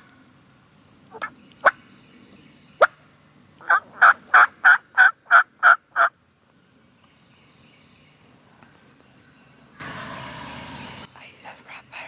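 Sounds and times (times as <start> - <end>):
turkey clucks: 1.1 - 1.8, 3.6 - 6.1
turkey yelps: 3.6 - 6.1.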